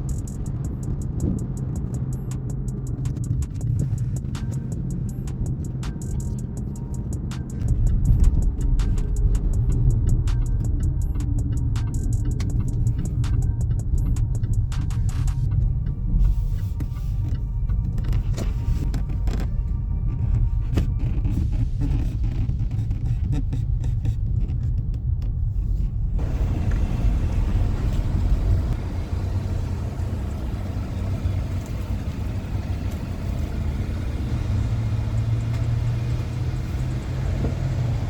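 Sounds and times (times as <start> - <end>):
car engine low rumble: 0.0 - 38.0.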